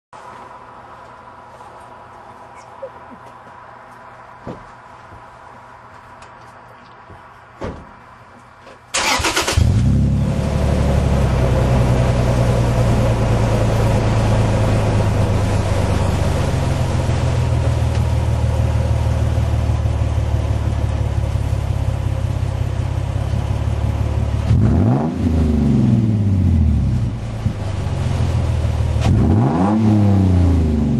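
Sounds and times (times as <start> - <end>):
truck engine cranking and starting: 8.9 - 22.3
engine revving: 9.0 - 18.3, 24.4 - 27.1, 28.2 - 30.9
truck engine idling: 9.0 - 24.5.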